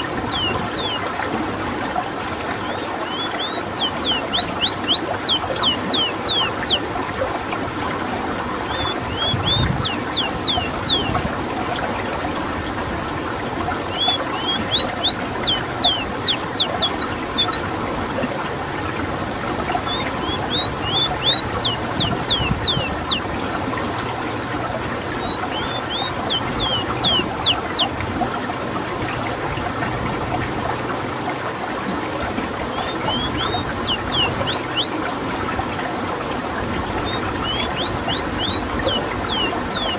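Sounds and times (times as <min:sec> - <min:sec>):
bird singing whistled notes: 0:00.0 - 0:01.0, 0:02.6 - 0:06.9, 0:08.7 - 0:11.2, 0:13.9 - 0:17.7, 0:19.8 - 0:23.3, 0:25.2 - 0:27.9, 0:32.7 - 0:35.0, 0:37.0 - 0:39.9.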